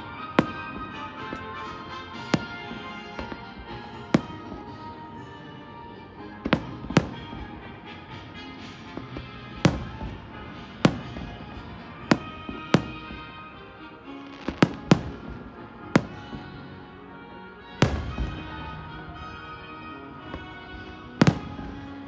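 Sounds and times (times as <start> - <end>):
fireworks bangs: 0.0 - 5.4, 6.4 - 16.8, 17.8 - 19.5, 20.3 - 22.0
music playing: 0.0 - 22.0.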